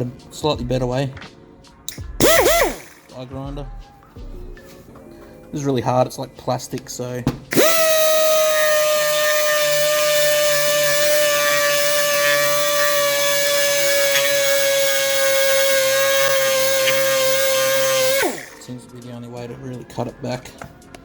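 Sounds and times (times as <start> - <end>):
die grinder cutting vinyl: 2.2 - 3.1, 7.5 - 18.7.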